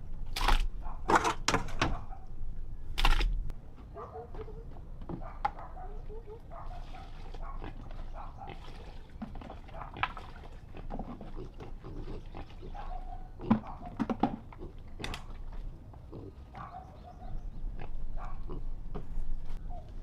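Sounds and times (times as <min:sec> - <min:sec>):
animal calls: 0:03.9 - 0:08.6, 0:11.4 - 0:15.3.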